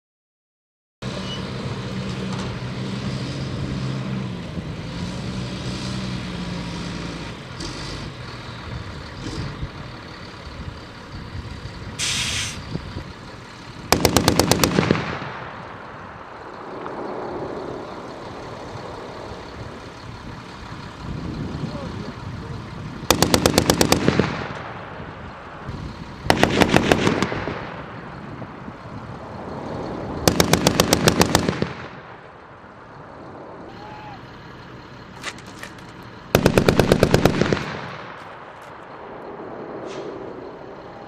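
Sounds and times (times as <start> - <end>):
vehicle engine running: 1.1 - 41.0
short hiss: 12.0 - 12.6
machine gun burst: 13.9 - 15.1, 23.1 - 24.2, 30.3 - 31.6, 36.4 - 38.0.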